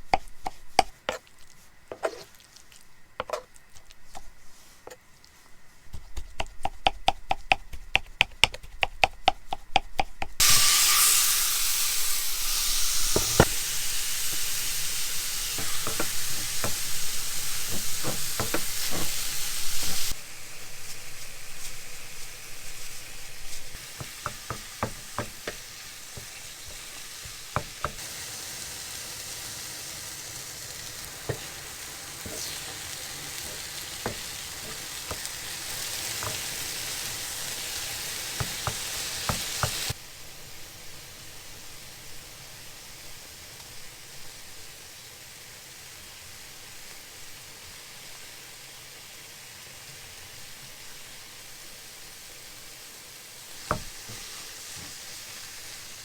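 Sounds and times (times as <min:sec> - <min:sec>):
food sizzling in a frying pan: 0:10.4 - 0:56.0
utensil knocking against pan: 0:13.1 - 0:13.6, 0:15.5 - 0:20.1, 0:23.8 - 0:28.0, 0:33.5 - 0:35.3, 0:36.1 - 0:36.6, 0:38.4 - 0:39.9, 0:53.7 - 0:54.9.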